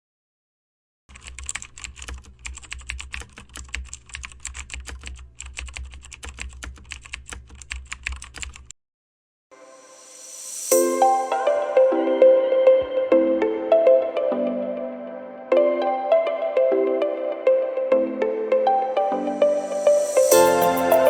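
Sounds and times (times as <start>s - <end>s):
keyboard typing: 1.1s - 8.7s, 20.3s - 21.0s
rising swell: 9.6s - 12.2s.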